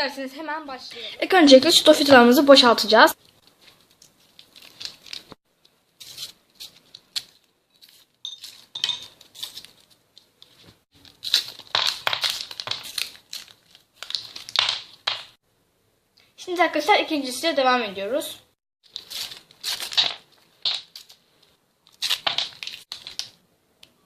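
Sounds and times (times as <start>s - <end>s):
candy packaging crinkling and tearing: 3.3s - 5.4s, 6.0s - 15.4s, 18.8s - 23.4s.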